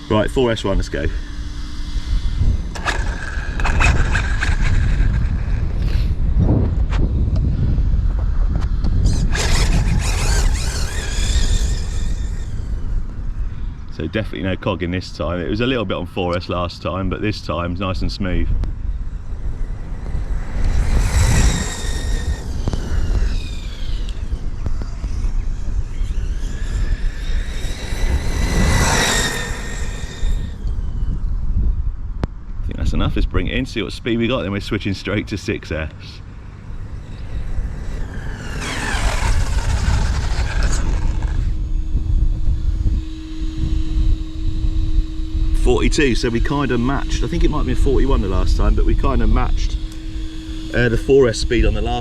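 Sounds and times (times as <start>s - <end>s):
rc car motor whine: 0.0s - 52.0s
wind buffeting microphone: 0.0s - 52.0s
steady tone: 18.3s - 32.0s, 35.1s - 52.0s.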